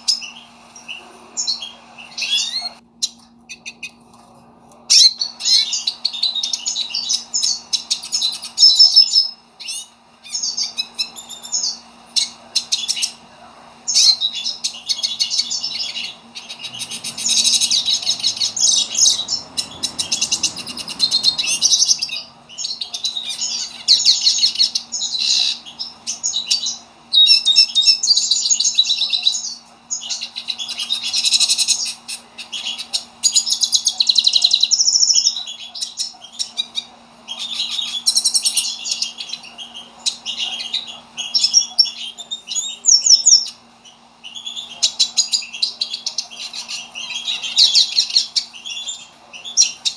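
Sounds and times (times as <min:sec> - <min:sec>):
finch singing twittering song: 0:00.0 - 0:04.0, 0:04.8 - 0:49.9.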